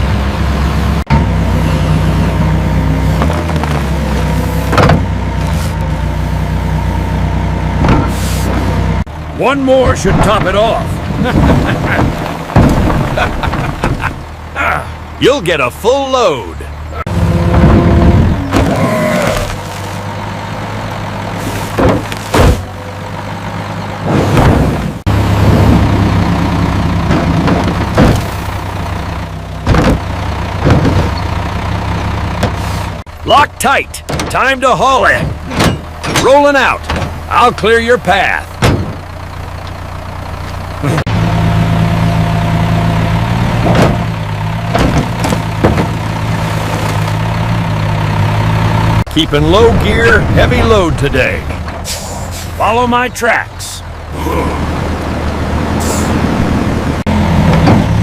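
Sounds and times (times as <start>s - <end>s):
diesel machinery engine running: 0.0s - 58.0s
short clunks: 3.2s - 5.9s, 7.8s - 8.7s, 11.2s - 14.3s, 21.4s - 22.8s, 29.6s - 31.4s, 34.0s - 34.4s, 35.1s - 37.3s, 38.5s - 39.8s, 43.6s - 47.2s
short sweeping noises: 8.1s - 8.7s.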